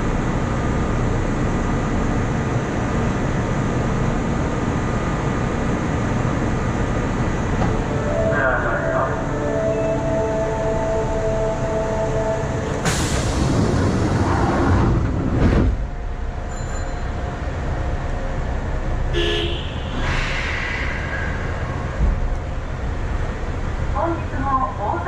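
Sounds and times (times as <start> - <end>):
steady train tones: 0.0 - 25.0
train cab steady noise: 0.0 - 25.0
short tone: 16.5 - 17.2
loud air hiss: 19.6 - 22.1.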